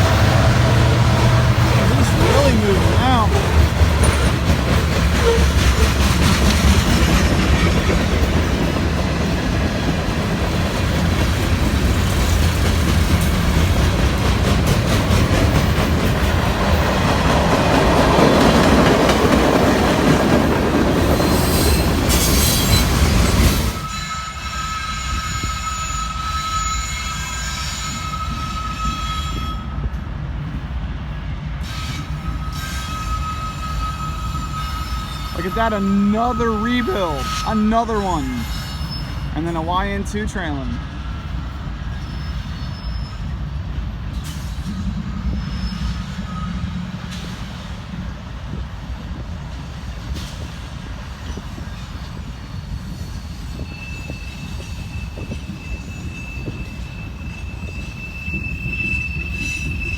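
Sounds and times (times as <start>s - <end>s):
freight train wheels rumbling: 0.0s - 59.9s
high wheel squeal: 1.6s - 6.0s, 21.2s - 29.7s, 31.6s - 39.4s, 41.9s - 43.5s, 44.2s - 47.3s, 51.2s - 59.9s.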